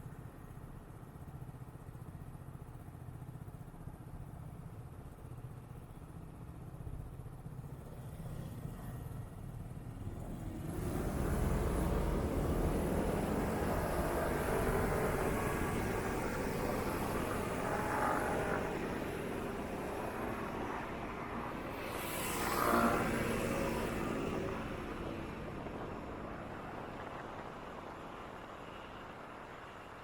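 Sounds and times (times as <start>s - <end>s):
motor traffic rumble: 6.1s - 30.0s.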